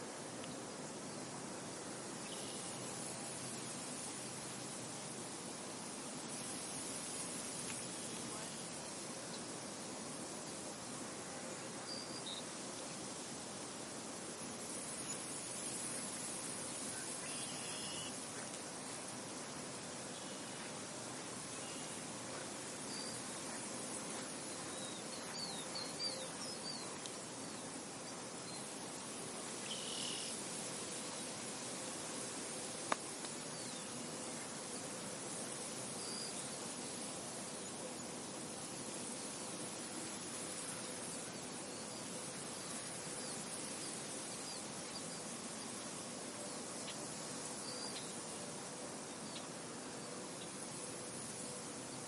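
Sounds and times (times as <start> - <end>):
wind rustling through field: 0.0 - 52.0
small birds chirping: 22.8 - 28.7.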